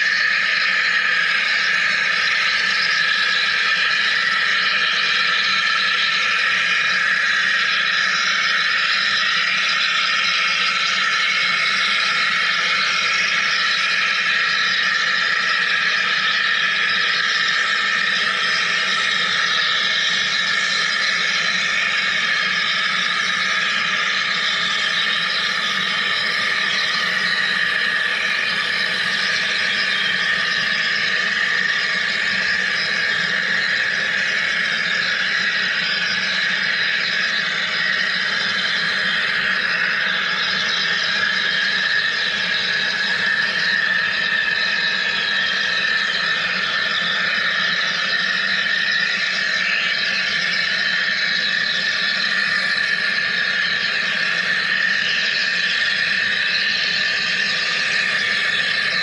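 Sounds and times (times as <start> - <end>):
machine hiss and whine: 0.0 - 59.0.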